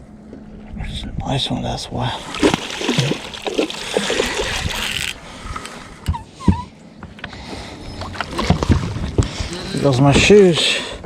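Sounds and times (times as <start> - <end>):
water splashing and churning: 2.1 - 6.0, 7.7 - 11.0.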